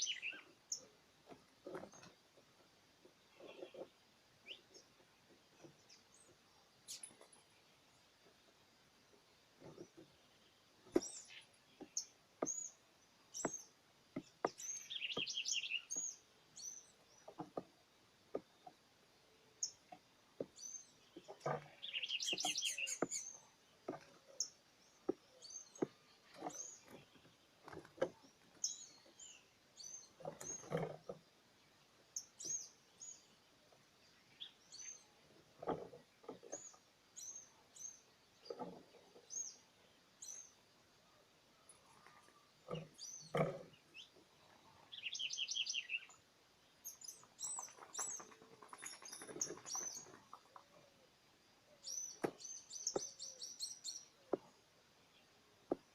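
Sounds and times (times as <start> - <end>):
small birds chirping: 0.0 - 55.9
bird trills: 21.8 - 23.4.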